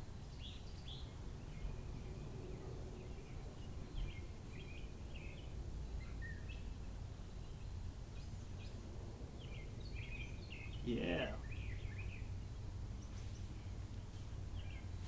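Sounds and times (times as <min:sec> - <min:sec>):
birds chirping: 0:00.2 - 0:15.0.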